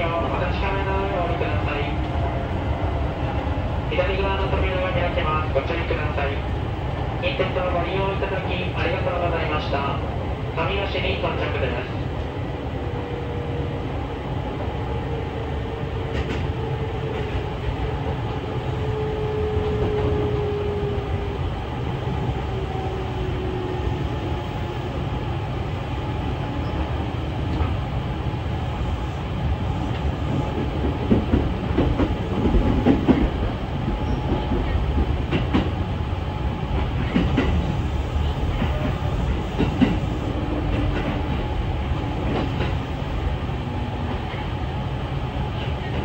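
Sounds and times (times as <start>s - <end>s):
train wheels rumbling on rail: 0.0s - 46.0s
train clacks over rail joints: 16.1s - 17.5s, 29.9s - 35.8s, 36.7s - 37.8s, 38.4s - 42.8s, 45.6s - 46.0s.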